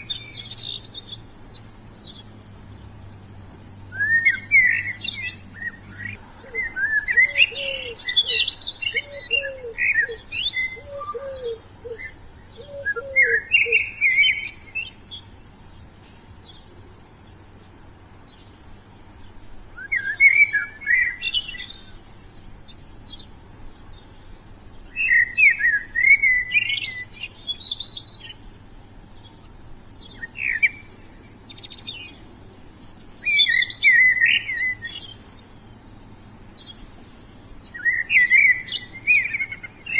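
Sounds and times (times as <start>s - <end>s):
lower bird call: 0.0s - 17.6s, 18.2s - 39.9s
songbirds chirping: 0.0s - 39.9s.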